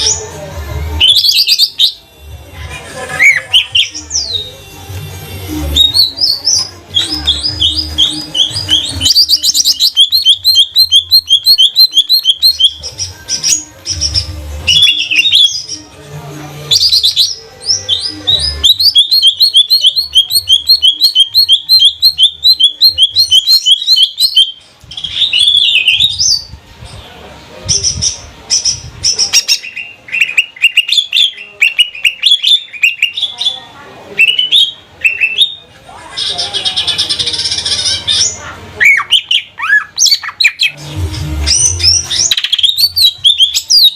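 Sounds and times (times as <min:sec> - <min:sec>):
bird singing high chirps: 0:03.2 - 0:04.7, 0:05.7 - 0:15.8, 0:16.7 - 0:26.5, 0:41.4 - 0:43.9.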